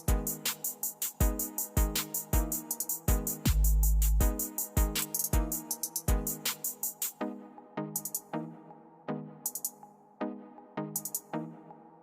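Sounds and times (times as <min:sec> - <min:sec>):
electronic music with heavy bass drum: 0:00.0 - 0:08.3, 0:09.4 - 0:09.9, 0:10.8 - 0:11.6.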